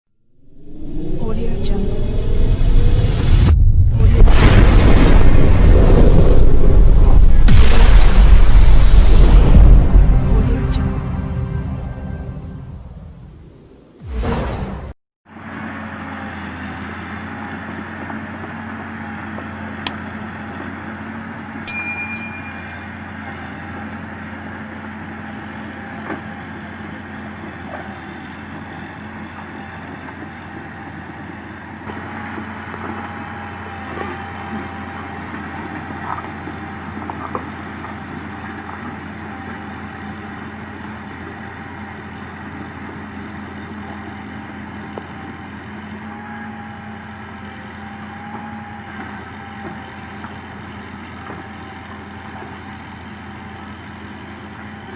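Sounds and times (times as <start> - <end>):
excavator diesel engine running: 9.1 - 12.6, 15.3 - 54.9
sharp metallic clang: 21.7 - 23.0.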